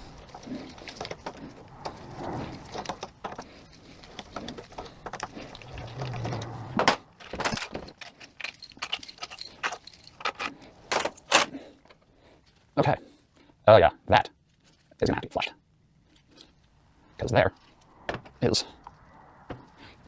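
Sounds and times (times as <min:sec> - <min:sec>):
small metal parts clinking: 0:06.2 - 0:11.6.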